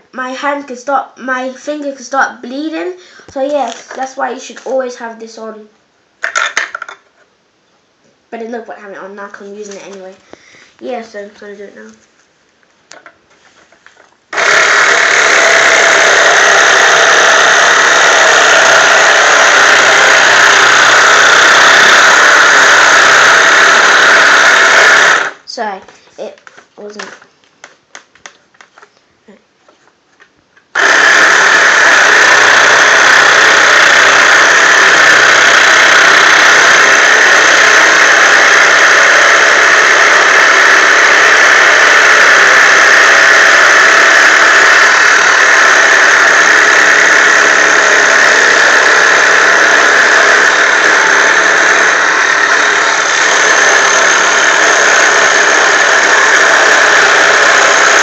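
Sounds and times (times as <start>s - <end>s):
toy jigsaw running: 14.3s - 25.4s, 30.7s - 58.0s.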